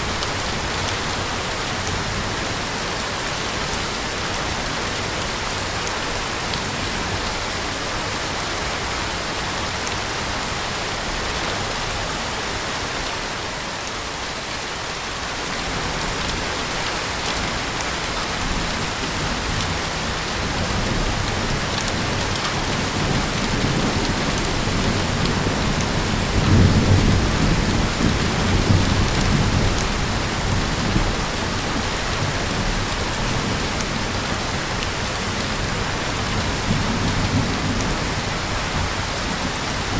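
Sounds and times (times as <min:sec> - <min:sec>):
heavy rain falling: 0:00.0 - 0:39.9
distant thunder rumble: 0:18.6 - 0:34.5.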